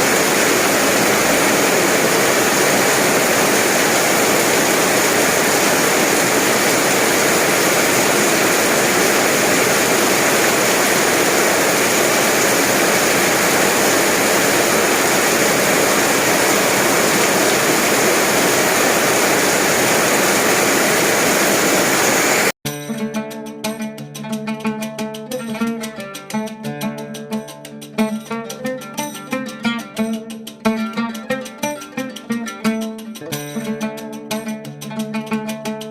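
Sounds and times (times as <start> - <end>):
heavy rain pouring: 0.0 - 22.6
plucked-string music: 22.6 - 35.9.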